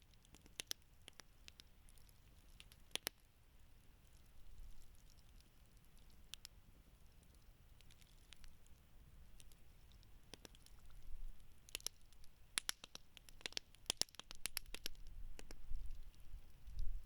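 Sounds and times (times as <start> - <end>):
campfire crackling and popping: 11.6 - 16.9.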